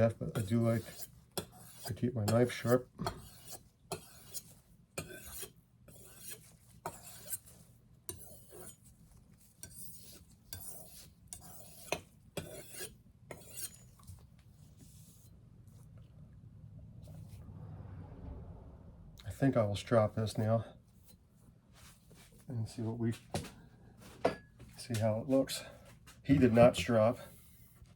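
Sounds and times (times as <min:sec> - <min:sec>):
knife scraping sharpening stone: 0:00.3 - 0:14.1.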